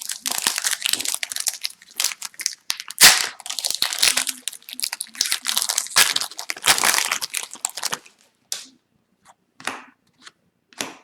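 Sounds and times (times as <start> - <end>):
cards and packs crinkling: 0.0 - 8.4.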